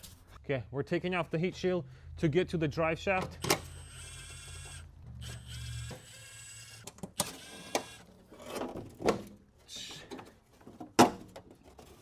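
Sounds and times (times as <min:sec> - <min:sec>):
power tool motor whirring: 0:03.4 - 0:08.1.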